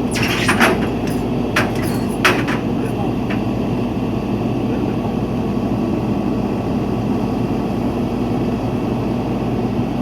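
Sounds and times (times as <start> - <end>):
truck engine idling: 0.0 - 4.1.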